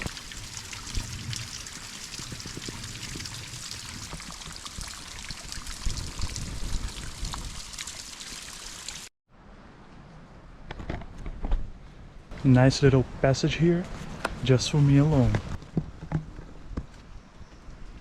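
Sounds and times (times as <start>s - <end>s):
water trickling and splashing: 0.0s - 9.1s.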